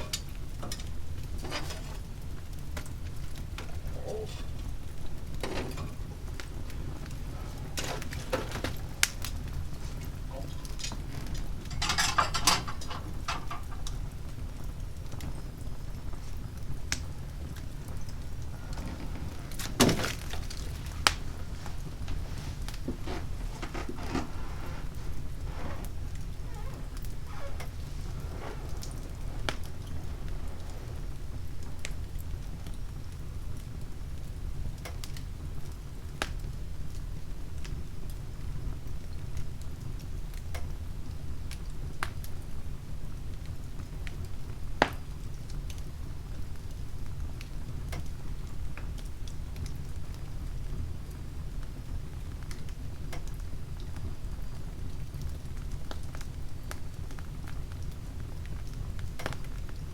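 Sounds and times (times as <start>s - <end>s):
fire burning with low roar: 0.0s - 59.9s
wood crackling: 0.0s - 59.9s
loud heavy wood crack: 18.5s - 27.9s.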